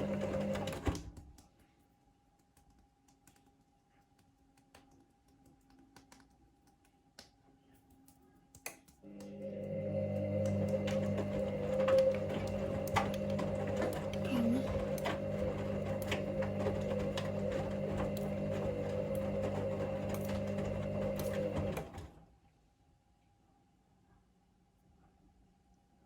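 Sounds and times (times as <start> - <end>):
washing machine drum motor humming: 0.0 - 1.1, 9.1 - 22.2.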